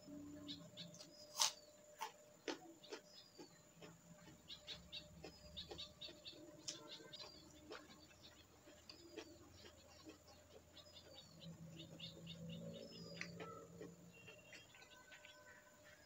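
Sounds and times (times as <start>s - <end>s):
wet chewing and lip-smacking: 1.4s - 11.2s.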